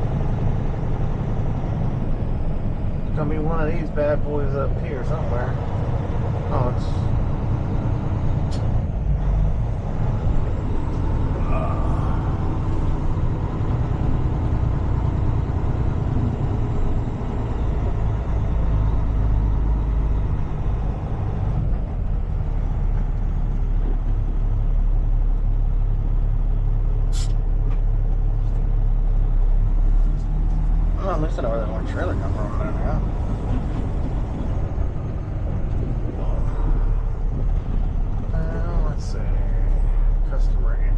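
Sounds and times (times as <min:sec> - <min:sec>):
truck engine rumble: 0:00.0 - 0:40.9
brief hiss: 0:27.1 - 0:27.4.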